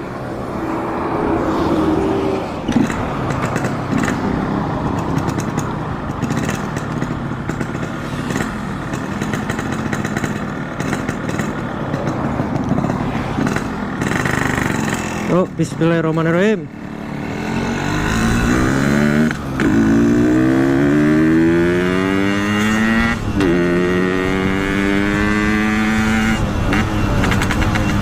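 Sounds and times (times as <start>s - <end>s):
two-stroke motorcycle revving: 1.8s - 28.0s.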